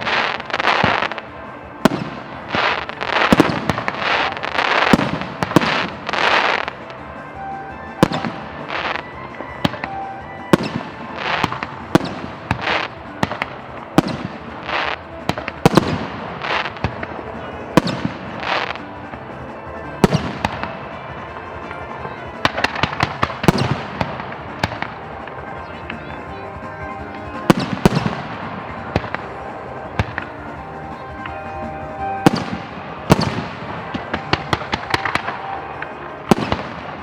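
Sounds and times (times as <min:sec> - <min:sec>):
fireworks bangs: 0:00.0 - 0:37.0
fireworks hissing: 0:00.0 - 0:37.0
music playing: 0:00.0 - 0:37.0.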